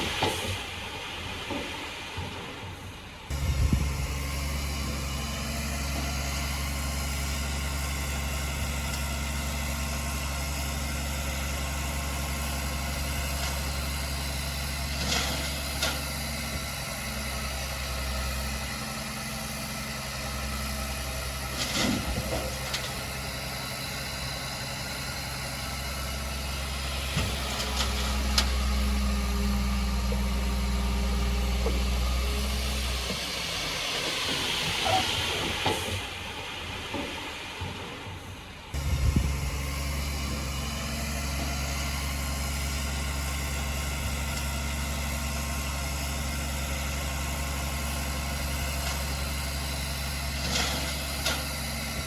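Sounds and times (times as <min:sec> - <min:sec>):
heavy diesel engine running: 0:00.0 - 0:52.0.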